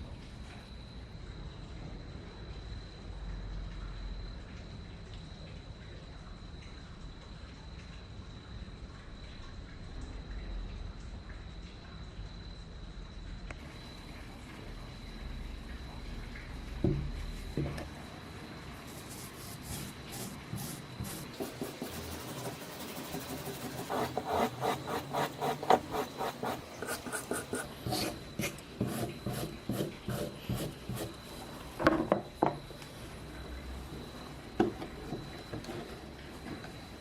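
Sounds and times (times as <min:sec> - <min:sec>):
abrasive tool rubbing on metal: 0:19.0 - 0:31.2.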